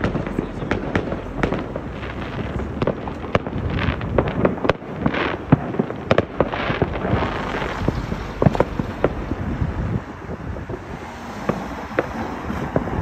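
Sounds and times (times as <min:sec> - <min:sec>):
hissing crackle: 0:00.0 - 0:10.0
fireworks bangs and pops: 0:00.0 - 0:13.0.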